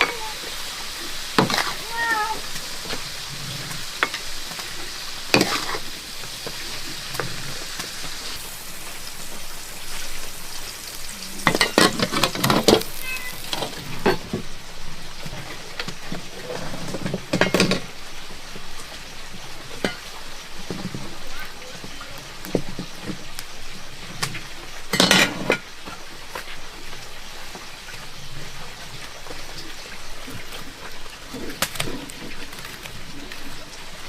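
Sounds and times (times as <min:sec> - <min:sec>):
food sizzling in a pan: 0:00.0 - 0:34.0
metal spatula scraping a pan: 0:02.8 - 0:07.7.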